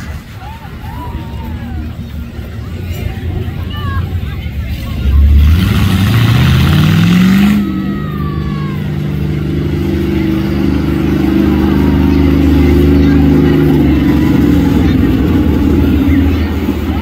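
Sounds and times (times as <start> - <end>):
monster truck engine revving: 0.0 - 17.0
rush of exhaust: 0.0 - 17.0.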